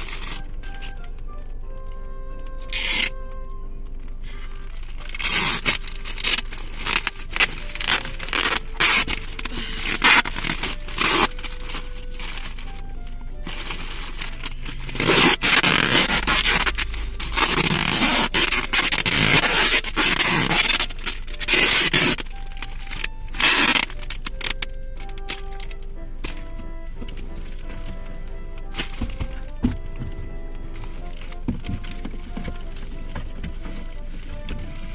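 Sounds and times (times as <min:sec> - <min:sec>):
wrapping paper scraped and torn: 0:00.0 - 0:01.5, 0:02.5 - 0:03.2, 0:03.9 - 0:34.9
background music: 0:00.0 - 0:34.9.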